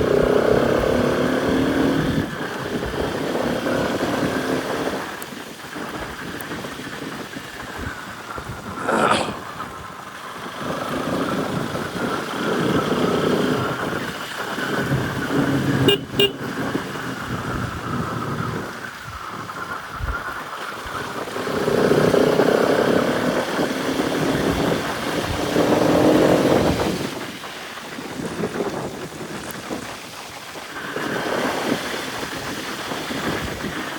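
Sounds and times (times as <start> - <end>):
motorcycle engine revving: 0.0 - 5.2, 10.3 - 18.8, 21.0 - 27.3.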